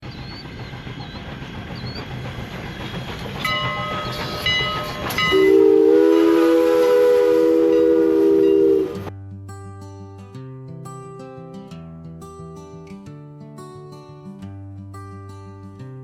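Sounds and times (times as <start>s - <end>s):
steam train rumbling: 0.0s - 9.1s
steam train whistle chord: 3.5s - 9.1s.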